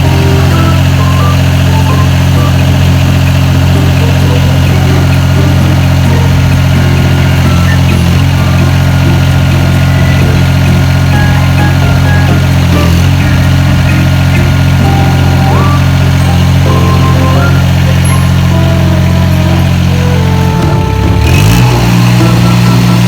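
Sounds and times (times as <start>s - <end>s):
excavator engine idling: 0.0s - 23.0s.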